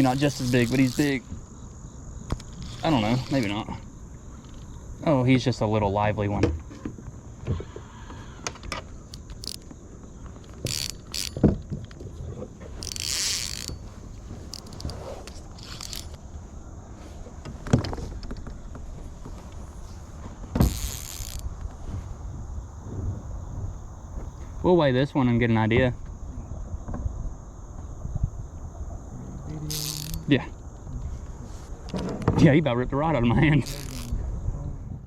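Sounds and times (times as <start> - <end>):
fishing gear knocking and rattling: 0.0 - 1.2, 2.3 - 3.8, 8.6 - 16.7, 20.6 - 22.9, 29.7 - 30.3, 33.6 - 34.2
crickets chirping: 0.0 - 35.0.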